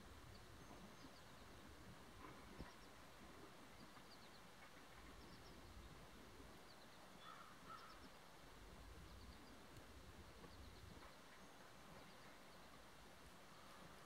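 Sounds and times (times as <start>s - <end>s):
distant bird calls: 0.1s - 8.3s.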